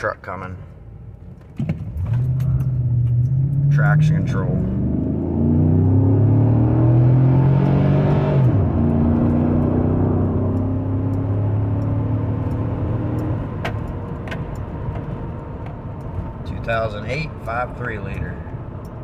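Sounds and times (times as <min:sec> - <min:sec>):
engine accelerating hard: 0:02.2 - 0:13.5.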